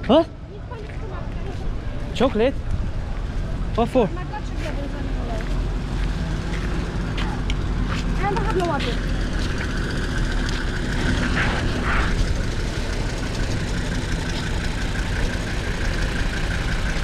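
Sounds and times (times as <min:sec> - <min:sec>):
quad bike engine running: 0:05.8 - 0:17.0.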